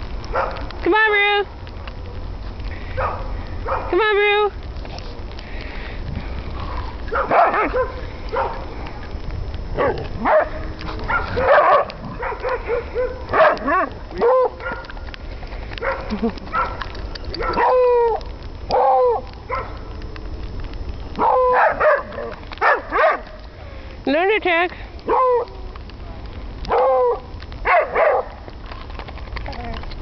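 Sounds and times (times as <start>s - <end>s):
low rumble: 0.0s - 24.1s
dog barking and yipping: 0.3s - 0.7s, 3.0s - 4.0s, 7.1s - 8.6s, 9.8s - 15.0s, 15.8s - 18.1s, 21.2s - 23.3s, 25.1s - 25.5s, 26.7s - 28.4s.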